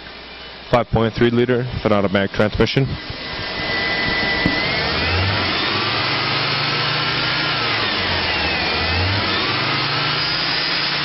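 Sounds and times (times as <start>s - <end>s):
car engine running: 3.0s - 11.0s.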